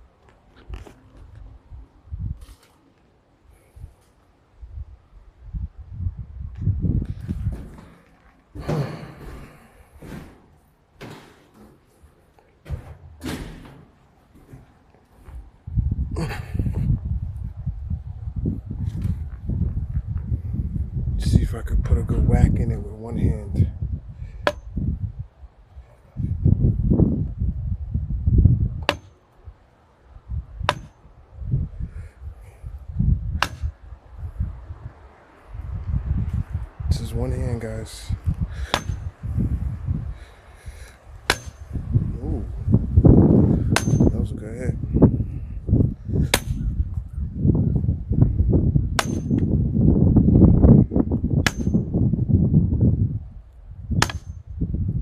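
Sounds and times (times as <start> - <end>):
wind rumbling on microphone: 0.0 - 10.8, 11.7 - 55.0
hammer clanging on metal pipe: 38.7 - 39.1, 41.3 - 41.7, 43.8 - 44.2, 49.0 - 49.4, 51.4 - 51.9, 54.0 - 54.4
hammer blows on steel pipe: 43.5 - 44.5.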